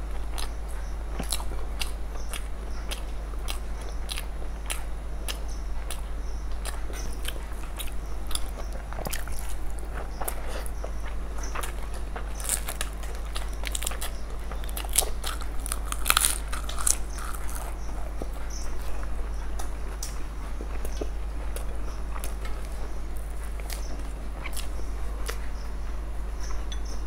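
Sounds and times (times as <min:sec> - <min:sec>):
low hum: 0:00.0 - 0:27.0
chewing and lip-smacking: 0:00.1 - 0:25.6
crunching: 0:06.6 - 0:25.6.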